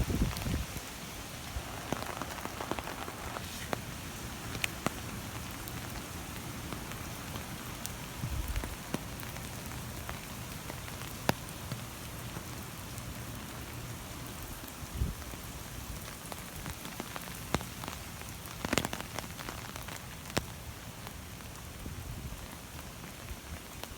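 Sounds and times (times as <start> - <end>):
heavy rain on hard surfaces: 0.0 - 23.9.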